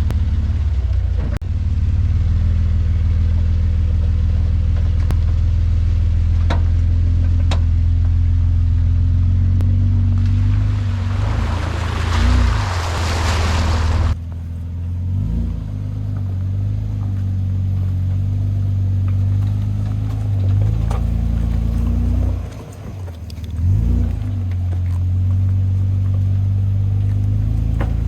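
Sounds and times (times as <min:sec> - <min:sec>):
unmuffled engine exhaust revving: 0:00.0 - 0:28.0
loud rushing noise: 0:10.7 - 0:14.2.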